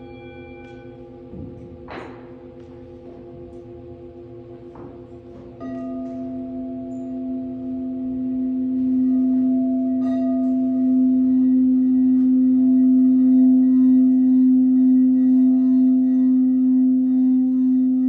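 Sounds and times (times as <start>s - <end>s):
singing bowl ringing: 0.0s - 18.0s.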